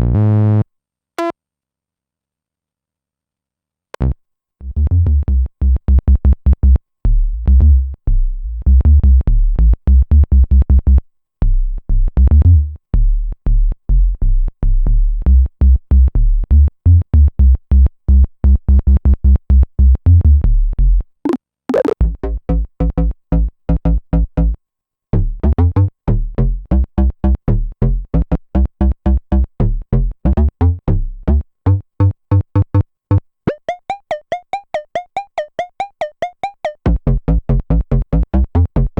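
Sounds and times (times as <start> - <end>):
synthesizer staccato bass line: 21.3 - 24.6, 25.2 - 33.8, 36.8 - 38.9
high synth sweep: 21.7 - 22.0.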